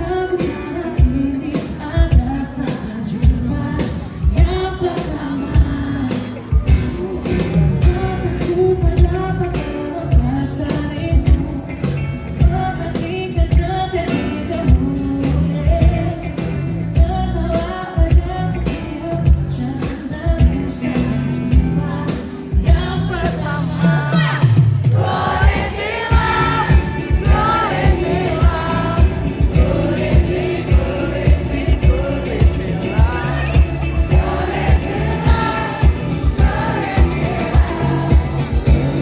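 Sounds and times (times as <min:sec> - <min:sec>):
live pop band: 0:00.0 - 0:39.0
drum beat: 0:24.6 - 0:39.0
person singing: 0:25.3 - 0:39.0.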